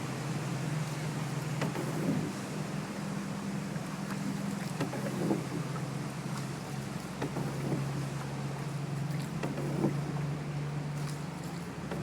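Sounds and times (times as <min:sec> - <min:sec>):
motorboat engine running: 0:00.0 - 0:12.0.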